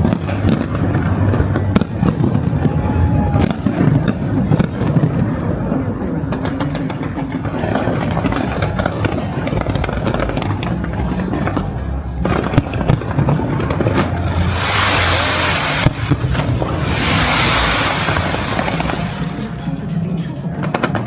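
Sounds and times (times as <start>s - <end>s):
fireworks bangs: 0.0s - 21.0s
loud music: 12.7s - 21.0s.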